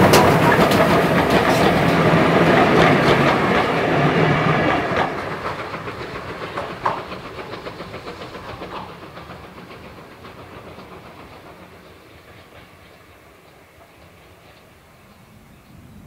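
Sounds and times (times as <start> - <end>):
train wheels clickety-clack: 0.0 - 15.8.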